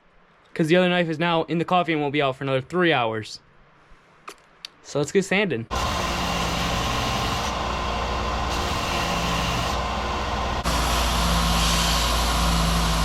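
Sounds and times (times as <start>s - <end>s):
power sander sanding wood: 5.7s - 13.0s.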